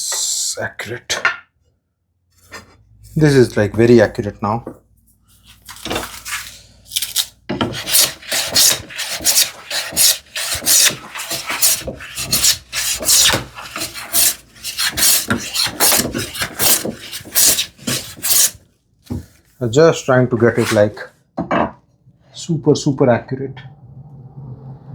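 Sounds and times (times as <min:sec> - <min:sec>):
hand plane strokes on wood: 0:07.6 - 0:18.6.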